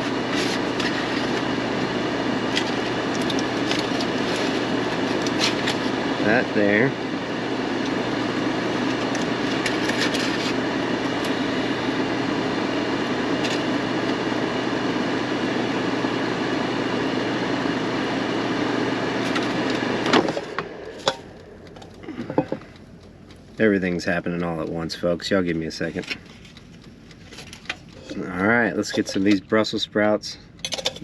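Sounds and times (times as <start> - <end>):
kitchen appliance whirring: 0.0 - 23.0.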